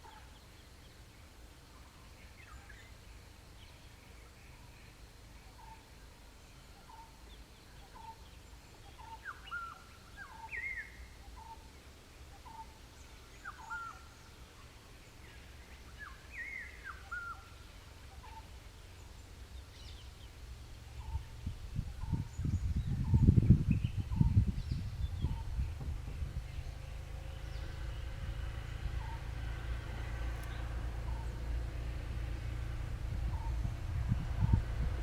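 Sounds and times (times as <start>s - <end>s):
low rumble: 20.8s - 35.0s.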